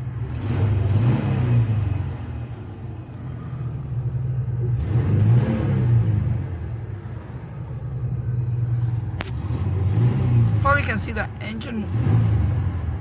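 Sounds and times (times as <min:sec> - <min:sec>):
truck engine revving: 0:00.0 - 0:13.0
engine idling: 0:01.7 - 0:11.6.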